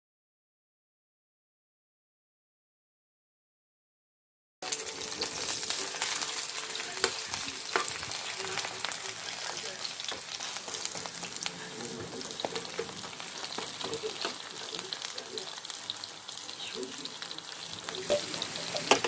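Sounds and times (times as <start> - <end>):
batter sizzling in hot oil: 4.6 - 19.0.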